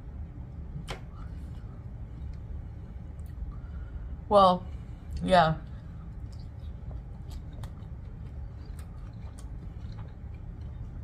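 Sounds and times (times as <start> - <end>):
low steady hum: 0.0 - 11.0
chewing noodles: 6.0 - 11.0.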